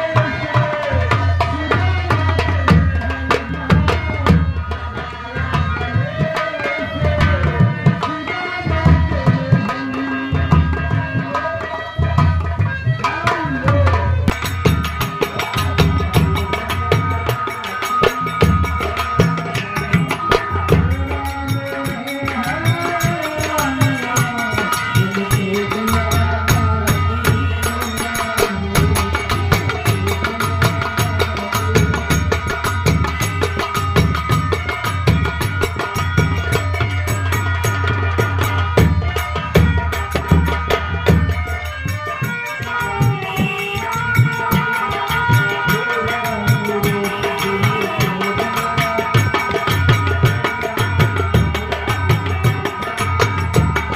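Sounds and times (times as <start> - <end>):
fast hand-drum playing: 0.0 - 53.9
wavering melody: 2.8 - 53.9.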